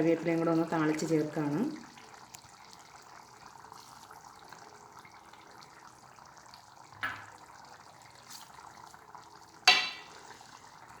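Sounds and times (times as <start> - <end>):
sizzling in hot oil: 0.0 - 11.0
utensil clinking against pan: 9.7 - 10.2.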